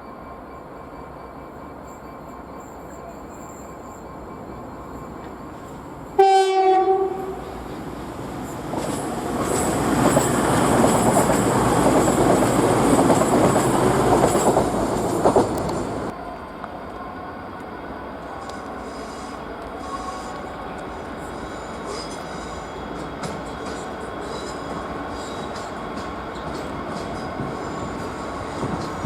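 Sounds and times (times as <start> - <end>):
train horn blast: 6.2 - 7.6, 18.2 - 22.8
train wheels clattering: 8.4 - 16.1, 21.5 - 29.0.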